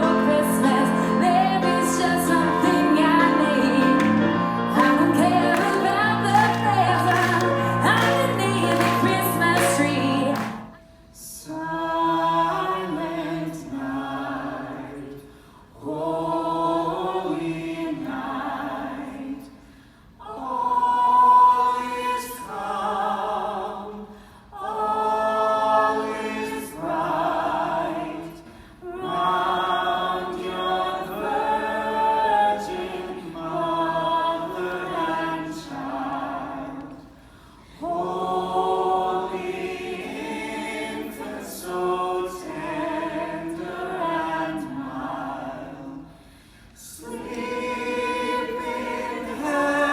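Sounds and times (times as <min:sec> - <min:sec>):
accompanied music: 0:00.0 - 0:10.9
choir singing unaccompanied: 0:00.0 - 0:15.2, 0:15.8 - 0:19.5, 0:20.2 - 0:46.1, 0:46.8 - 0:49.9.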